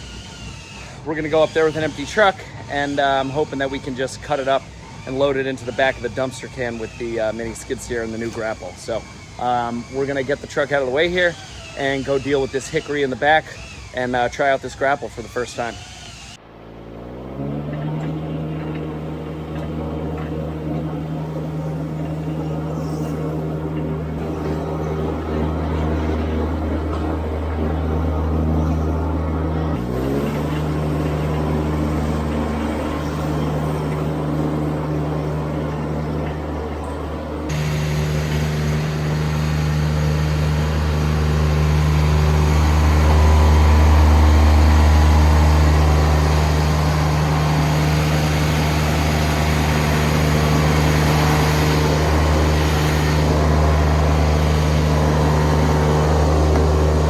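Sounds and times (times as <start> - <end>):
vehicle engine running: 16.3 - 57.0.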